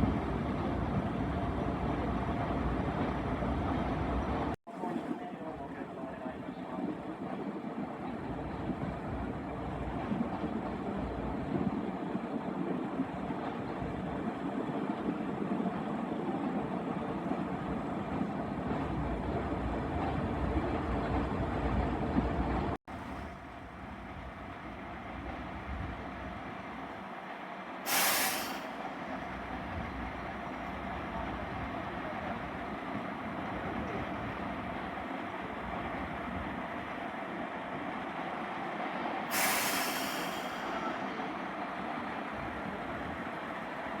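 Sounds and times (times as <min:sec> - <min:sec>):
train rumbling: 0:00.0 - 0:44.0
air brake hiss: 0:27.8 - 0:28.8, 0:39.3 - 0:41.0.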